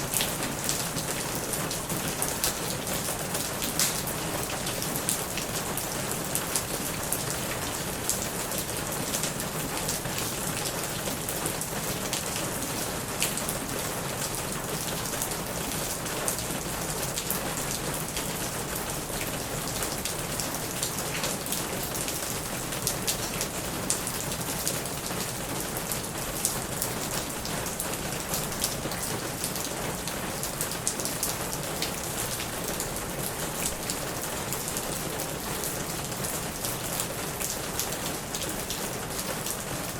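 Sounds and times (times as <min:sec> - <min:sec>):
heavy rain on a plastic roof: 0:00.0 - 0:39.9.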